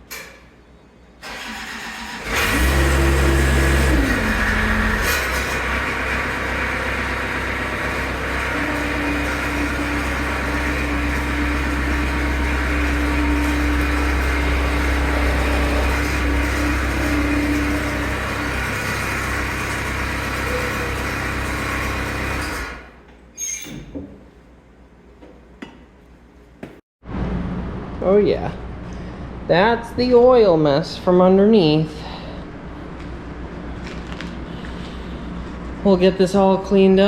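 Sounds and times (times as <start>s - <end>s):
skid steer engine running: 1.2s - 23.0s.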